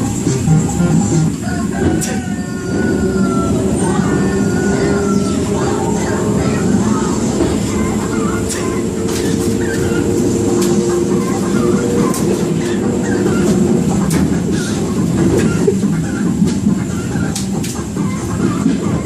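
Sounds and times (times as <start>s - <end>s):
train rumble and hum: 0.0s - 19.0s
wheels clicking over rail joints: 4.6s - 19.0s.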